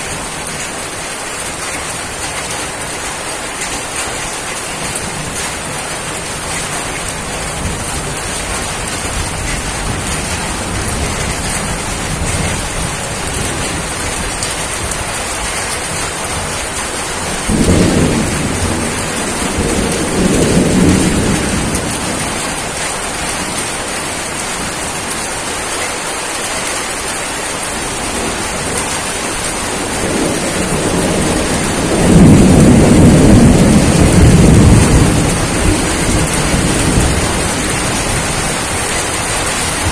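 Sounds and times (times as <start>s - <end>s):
rain hissing: 0.0s - 39.9s
thunder rumbling: 4.8s - 23.8s, 27.8s - 39.9s.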